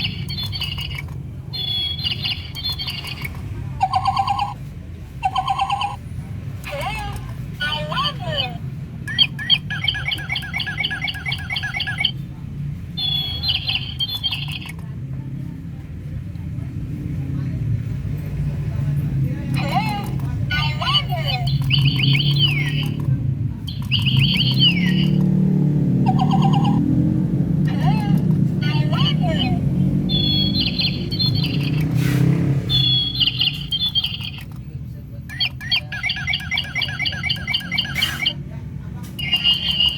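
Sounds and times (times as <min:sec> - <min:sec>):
toy bird chirping: 0:00.0 - 0:06.0, 0:06.6 - 0:12.2, 0:13.0 - 0:14.8, 0:19.6 - 0:23.1, 0:23.7 - 0:25.4, 0:26.0 - 0:26.9, 0:27.8 - 0:32.0, 0:32.7 - 0:34.6, 0:35.3 - 0:38.4, 0:39.2 - 0:39.9.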